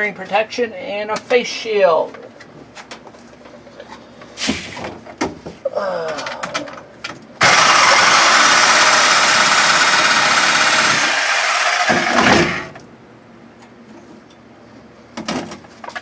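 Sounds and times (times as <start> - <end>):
power saw cutting sheet metal: 7.4 - 12.8.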